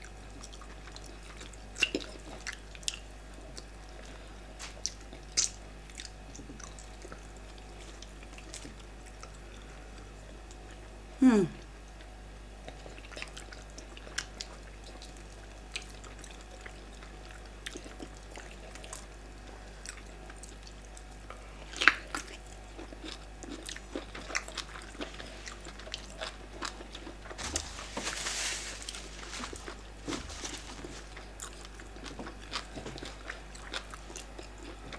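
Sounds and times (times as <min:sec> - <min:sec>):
paper tissue rustling: 0:27.3 - 0:31.2.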